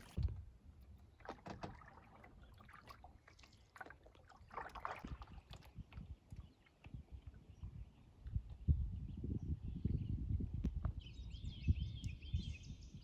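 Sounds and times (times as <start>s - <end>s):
paddle splashing in water: 0.0s - 6.8s.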